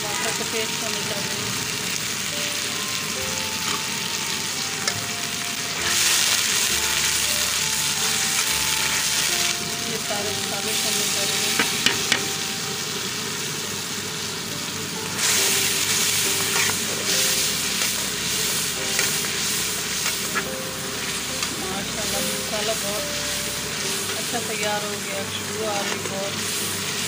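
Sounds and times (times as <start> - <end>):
onions sizzling in hot oil: 0.0 - 27.0
steel spoon scraping pan: 5.8 - 7.0, 8.8 - 9.2, 16.3 - 17.1, 18.9 - 19.2.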